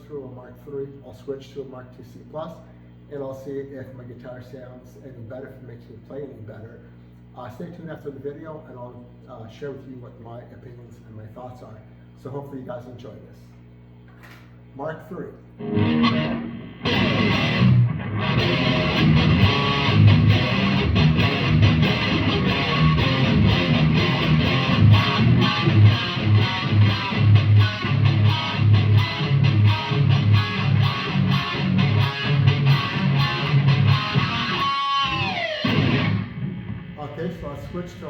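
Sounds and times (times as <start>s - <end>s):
distorted electric guitar riff: 15.6s - 38.0s.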